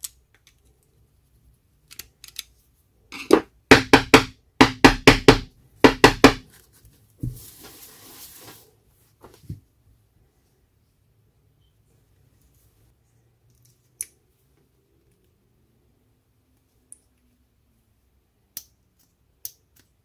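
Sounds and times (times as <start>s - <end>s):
plastic parts clicking and knocking: 0.0s - 0.9s, 1.8s - 4.3s.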